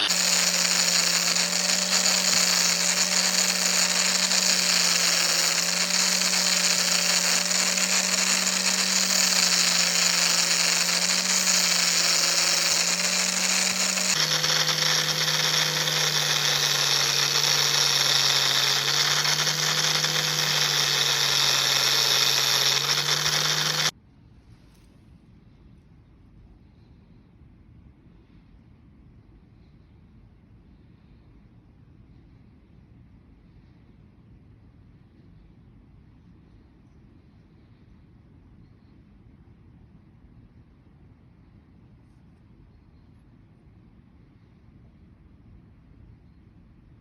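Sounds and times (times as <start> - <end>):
power tool motor grinding: 0.0 - 23.9.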